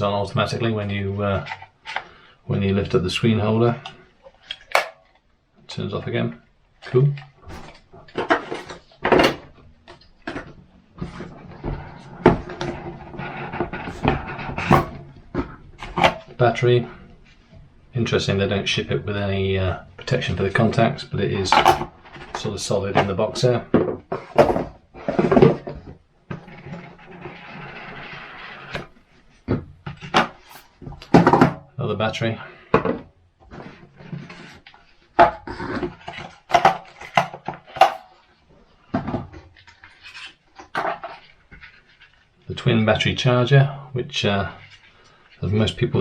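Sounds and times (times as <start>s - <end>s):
hard plastic parts knocking: 4.6s - 5.1s, 7.5s - 16.4s, 21.5s - 25.9s, 36.5s - 38.2s.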